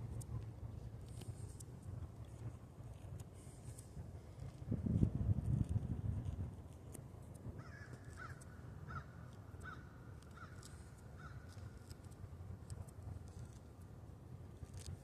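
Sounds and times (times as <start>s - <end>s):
steady low rumble: 0.0s - 15.0s
bird calling faintly: 7.6s - 12.0s.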